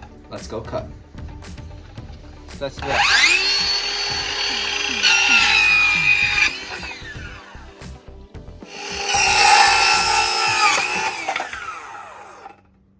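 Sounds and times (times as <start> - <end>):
circular saw cutting: 2.8 - 8.0, 8.6 - 12.6.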